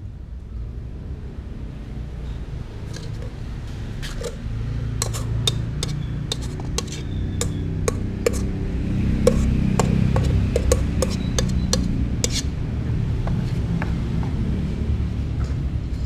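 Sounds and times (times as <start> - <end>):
sharp clicks and clinks: 5.0 - 8.5, 9.3 - 12.5
cats eating from dishes: 9.2 - 12.5.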